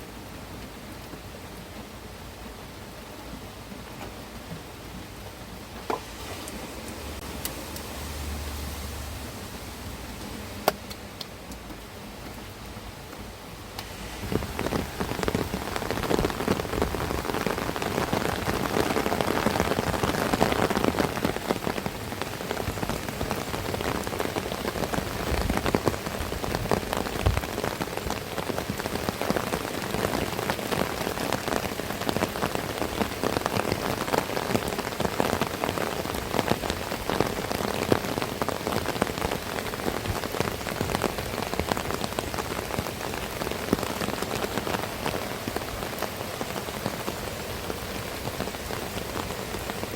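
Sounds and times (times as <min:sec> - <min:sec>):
heavy rain pouring: 0:00.0 - 0:49.9.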